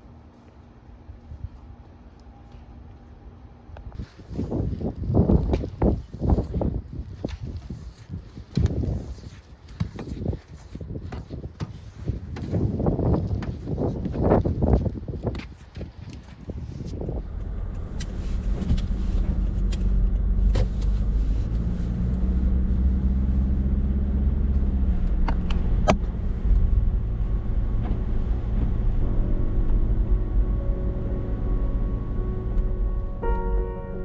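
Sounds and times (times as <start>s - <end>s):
car engine and road noise: 3.8s - 34.0s
music: 28.9s - 34.0s.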